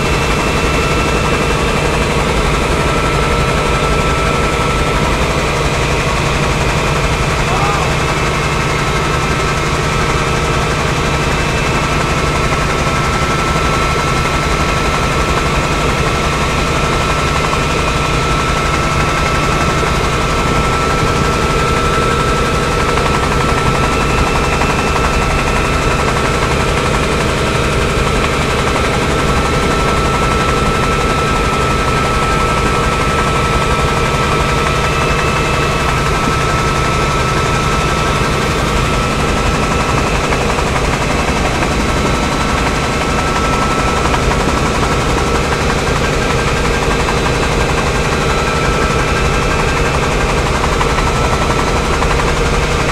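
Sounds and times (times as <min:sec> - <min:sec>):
helicopter high whine: 0:00.0 - 0:52.9
helicopter rotor chop: 0:00.0 - 0:52.9.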